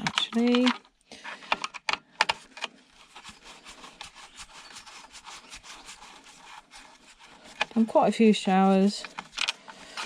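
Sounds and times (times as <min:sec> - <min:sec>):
tools clicking and knocking: 0:00.0 - 0:02.8, 0:09.0 - 0:10.0
soft rubbing and rustling: 0:02.4 - 0:10.0.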